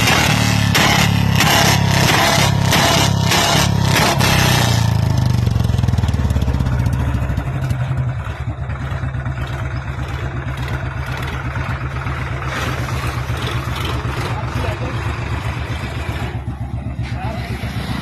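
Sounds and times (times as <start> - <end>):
motorcycle engine idling: 4.8 - 18.0.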